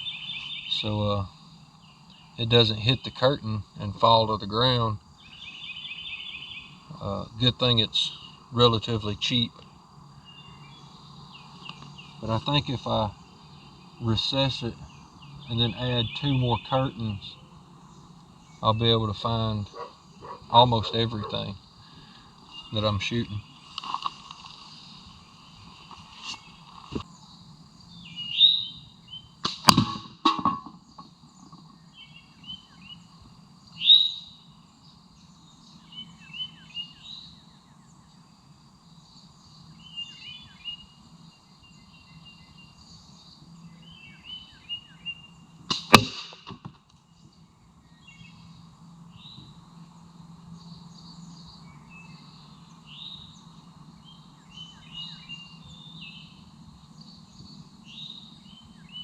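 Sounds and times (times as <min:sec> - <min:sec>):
songbirds chirping: 0:00.0 - 0:59.0
sharp gunshots: 0:29.4 - 0:30.4, 0:45.7 - 0:46.6.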